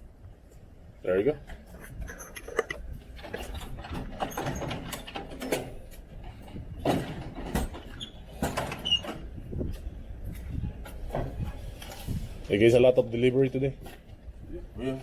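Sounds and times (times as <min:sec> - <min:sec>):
knocks clicks and scraping: 0:01.5 - 0:09.3.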